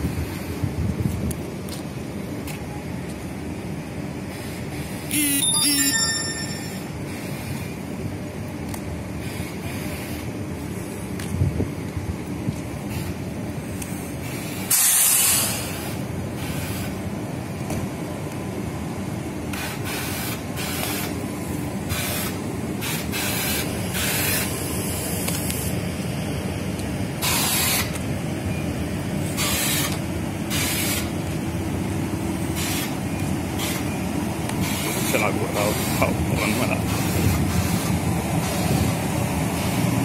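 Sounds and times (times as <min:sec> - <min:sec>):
train rumbling slowly past: 0:00.0 - 0:40.0
short hissing bursts: 0:14.3 - 0:16.9.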